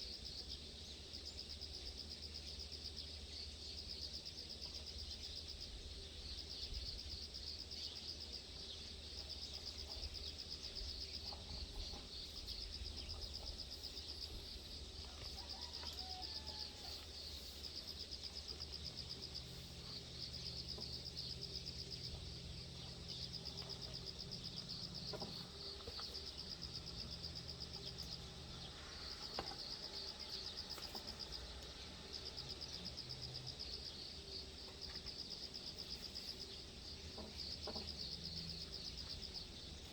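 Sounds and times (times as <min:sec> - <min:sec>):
faint low hum: 0:00.0 - 0:39.9
high-pitched insect trill: 0:09.1 - 0:36.7.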